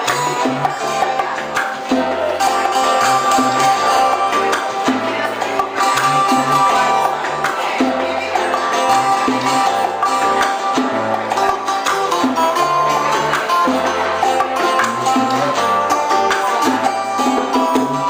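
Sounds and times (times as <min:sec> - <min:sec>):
plucked strings: 0:00.0 - 0:18.0
repeating bass line: 0:00.0 - 0:18.0.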